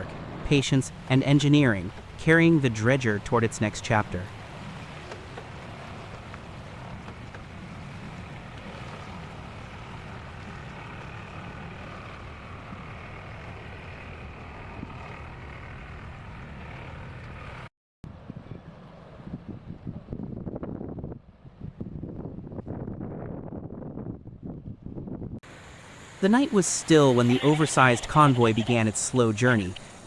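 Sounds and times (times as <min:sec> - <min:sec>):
diesel engines running under load: 0:00.0 - 0:17.7, 0:25.4 - 0:30.0
wind noise on microphone: 0:18.1 - 0:25.4.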